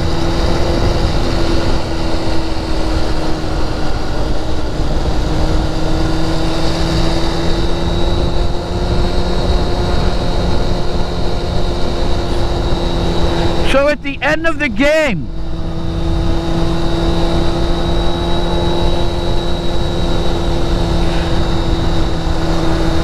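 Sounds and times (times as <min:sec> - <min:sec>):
road and wind noise: 0:00.0 - 0:14.2, 0:14.8 - 0:23.0
engine drone: 0:15.3 - 0:23.0.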